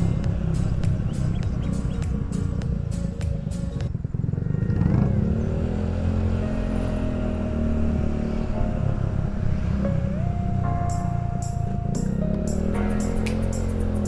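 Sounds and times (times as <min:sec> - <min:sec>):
motorcycle engine under throttle: 0:03.9 - 0:08.5, 0:12.0 - 0:14.0.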